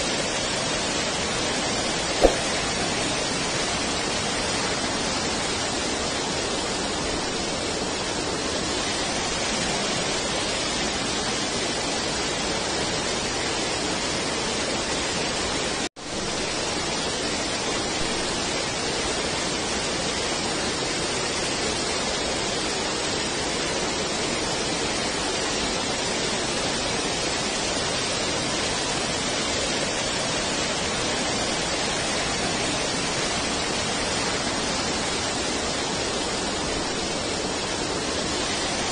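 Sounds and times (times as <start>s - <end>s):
waterfall rushing: 28.2s - 38.9s.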